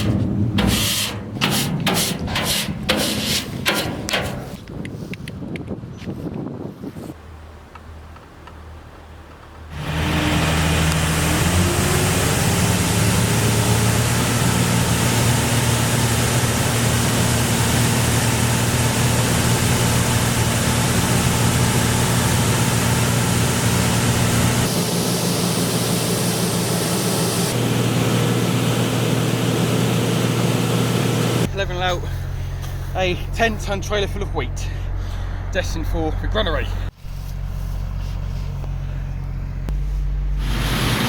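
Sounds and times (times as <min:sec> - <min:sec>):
tractor diesel engine droning: 0:09.7 - 0:41.0.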